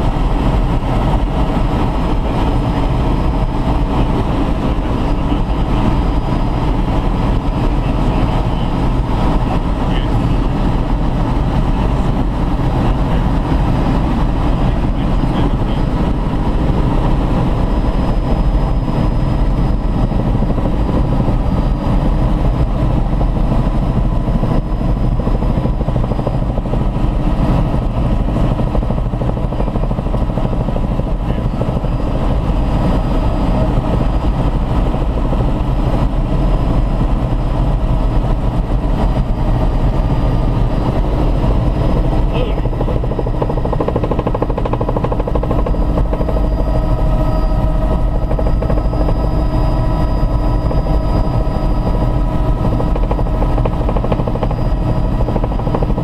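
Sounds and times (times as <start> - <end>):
helicopter engine and rotor drone: 0.0 - 56.0.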